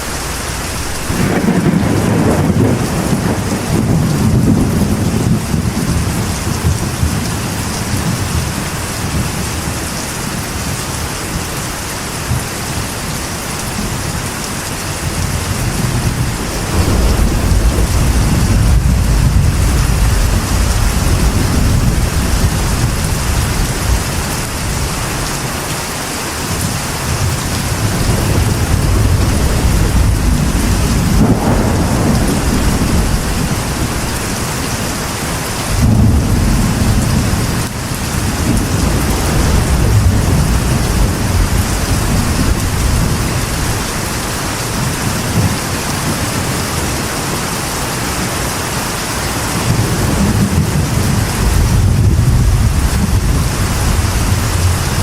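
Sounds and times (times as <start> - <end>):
rolling thunder: 0.0 - 9.9, 15.0 - 25.5, 26.5 - 47.4, 49.4 - 55.0
rain on a metal roof: 0.0 - 55.0.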